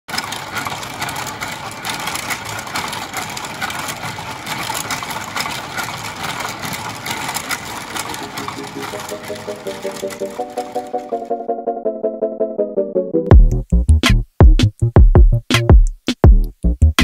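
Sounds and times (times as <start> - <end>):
braiding machine clattering: 0.1 - 11.4.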